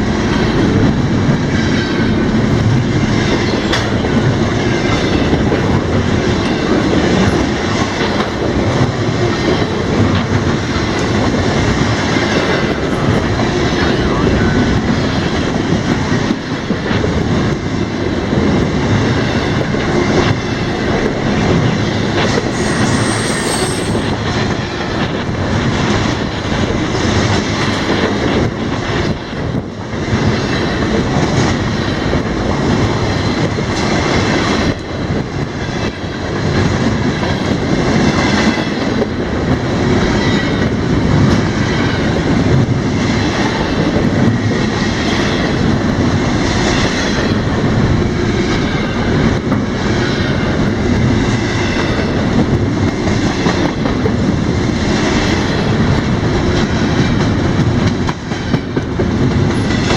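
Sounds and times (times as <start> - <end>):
freight train rumbling past: 0.0 - 59.9
high wheel squeal: 22.4 - 24.3.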